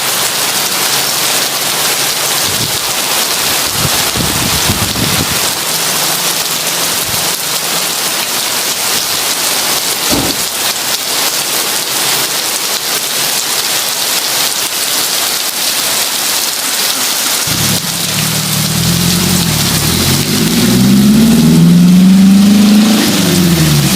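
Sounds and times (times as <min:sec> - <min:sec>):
heavy rain: 0:00.0 - 0:23.9
brief low thud: 0:10.1 - 0:10.4.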